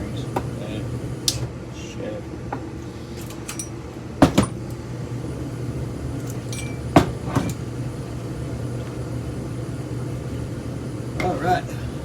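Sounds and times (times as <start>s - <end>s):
steady low hum: 0.0s - 12.0s
metal fan parts knocking and clinking: 3.2s - 4.8s, 6.2s - 7.6s.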